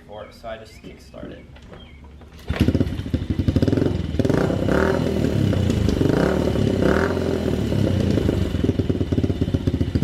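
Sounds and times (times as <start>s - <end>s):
small motorcycle engine running: 2.4s - 10.0s.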